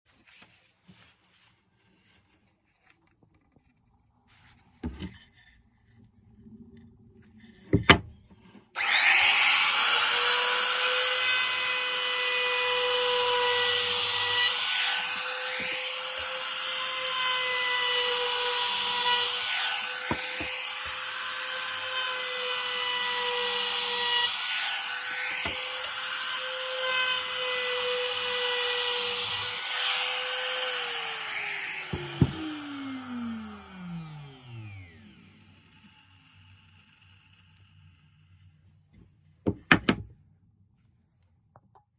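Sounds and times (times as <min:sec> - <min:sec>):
router whining routing wood: 0:08.7 - 0:38.2.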